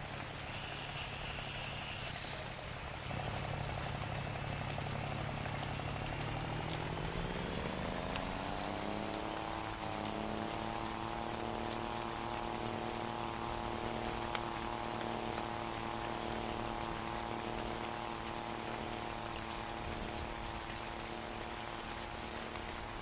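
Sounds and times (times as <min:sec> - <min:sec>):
steady hiss: 0:00.0 - 0:03.1
diesel truck engine running: 0:00.0 - 0:23.0.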